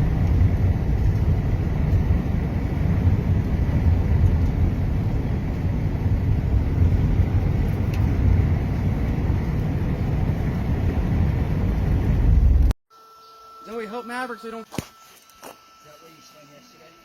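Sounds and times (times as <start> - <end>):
vehicle rumbling: 0.0 - 12.8
faint thin tone: 12.9 - 17.0.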